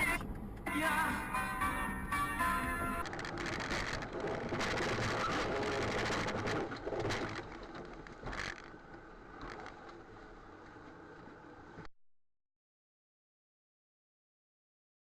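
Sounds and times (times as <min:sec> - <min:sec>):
vehicle and road noise: 0:00.0 - 0:11.9.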